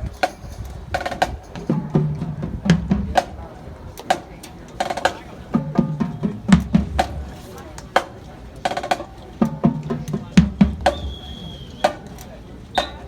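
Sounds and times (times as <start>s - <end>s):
snare and rim strikes: 10.8s - 13.0s.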